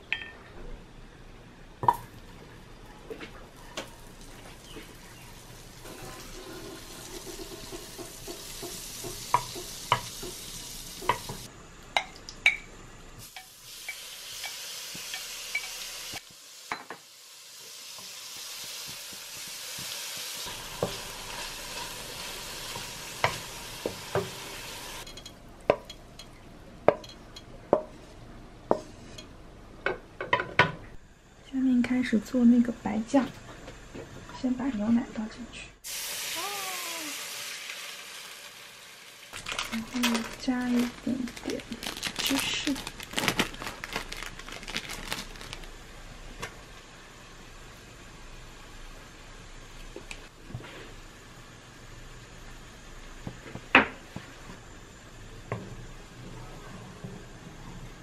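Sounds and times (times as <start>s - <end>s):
fish sizzling in hot oil: 5.4s - 11.5s, 13.2s - 25.1s, 35.8s - 45.7s.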